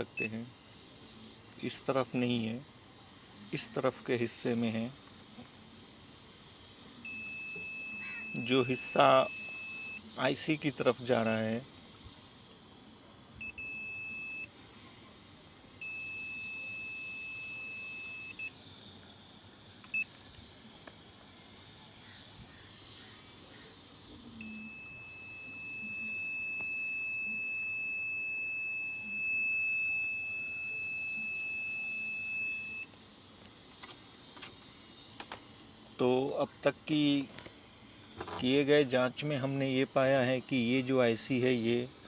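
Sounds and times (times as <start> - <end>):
multimeter continuity beep: 0.0 - 0.4, 7.0 - 11.6, 13.4 - 14.6, 15.8 - 18.6, 19.8 - 20.2, 24.0 - 33.6.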